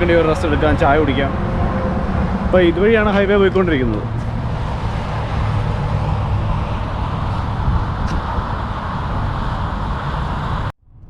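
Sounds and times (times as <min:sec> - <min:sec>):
highway traffic rumble: 0:00.0 - 0:11.0.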